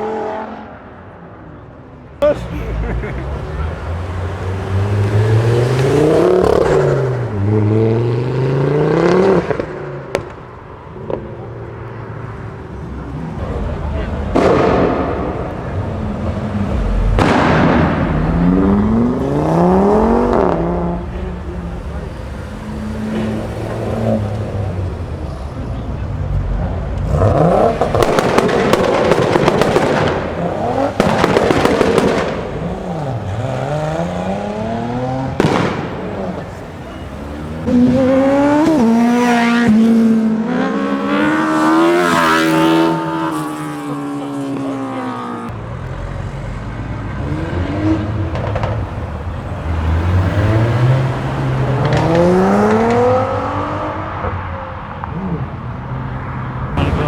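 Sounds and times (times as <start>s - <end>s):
cars revving and accelerating: 0.0s - 57.0s
exhaust pops and crackles: 9.2s - 12.0s, 12.9s - 39.8s, 48.0s - 49.9s, 51.5s - 53.4s.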